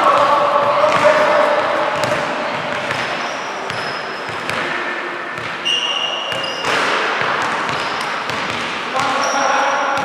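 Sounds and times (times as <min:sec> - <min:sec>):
basketball bouncing: 0:00.0 - 0:04.8, 0:06.3 - 0:09.2
sneakers squeaking: 0:00.0 - 0:10.0.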